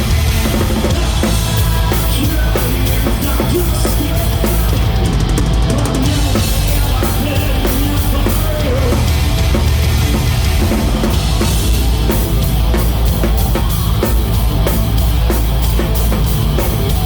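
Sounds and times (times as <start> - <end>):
hard rock band playing: 0.0 - 17.0.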